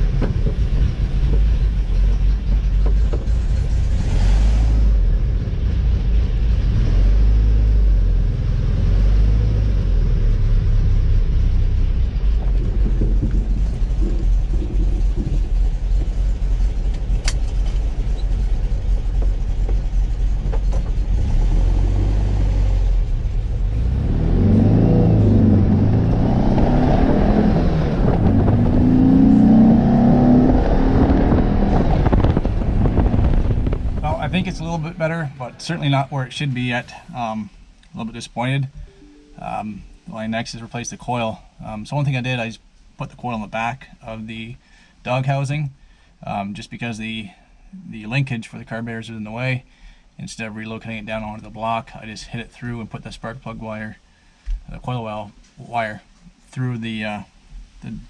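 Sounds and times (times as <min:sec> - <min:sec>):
car engine droning and revving: 0:00.0 - 0:37.1.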